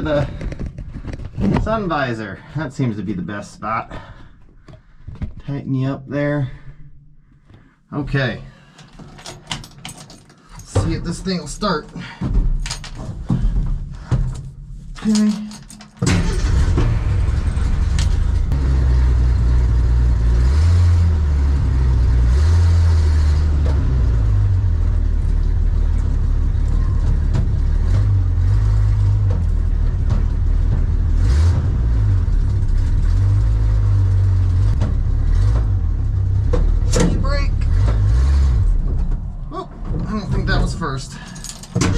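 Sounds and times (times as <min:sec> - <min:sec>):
van engine revving: 0:16.0 - 0:41.9.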